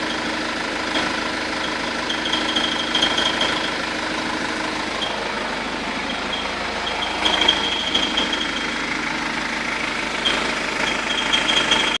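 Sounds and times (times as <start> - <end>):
diesel engine idling: 0.0 - 12.0
high chirping: 6.0 - 8.8.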